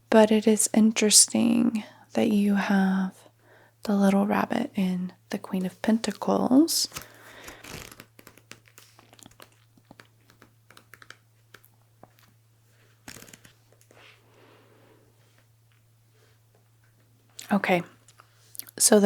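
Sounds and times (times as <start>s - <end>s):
low electrical hum: 0.0s - 19.0s
book pages turning: 6.9s - 14.2s.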